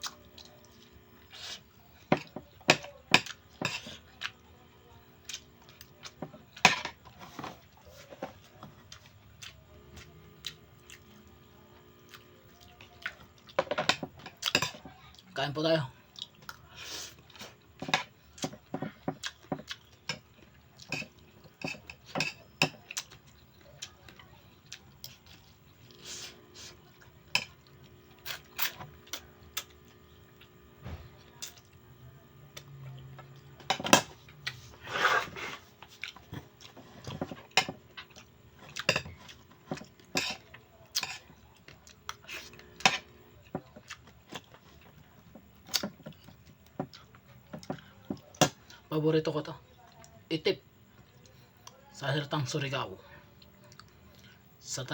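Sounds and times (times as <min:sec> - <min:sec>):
quiet chewing: 0:00.0 - 0:02.6, 0:05.2 - 0:13.6, 0:16.1 - 0:21.8, 0:22.7 - 0:33.6, 0:34.2 - 0:48.9, 0:53.2 - 0:54.5
cutlery clinking on a plate: 0:38.8 - 0:40.4.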